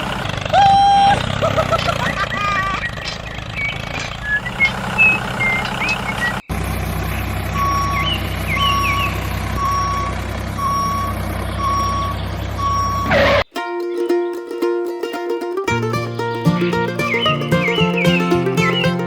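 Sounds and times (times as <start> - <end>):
reversing alarm beeping: 6.8 - 13.4
engine running: 15.6 - 19.0.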